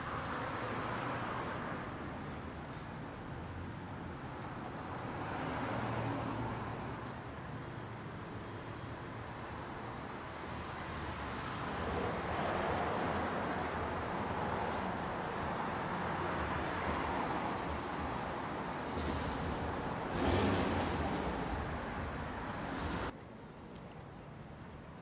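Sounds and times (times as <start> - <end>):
rushing outdoor noise: 0.0 - 25.0.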